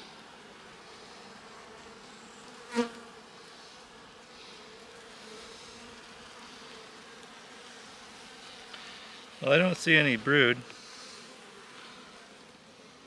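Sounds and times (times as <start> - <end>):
honeybees humming: 0.0 - 13.0
loud bee buzz: 0.0 - 13.0.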